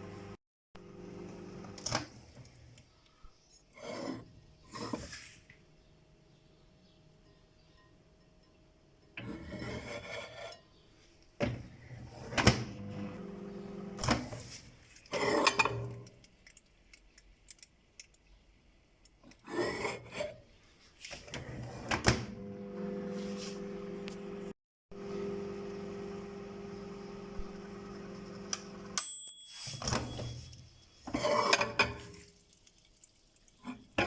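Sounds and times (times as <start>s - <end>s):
microwave oven humming: 0.0s - 2.1s, 12.7s - 14.2s, 22.1s - 29.0s.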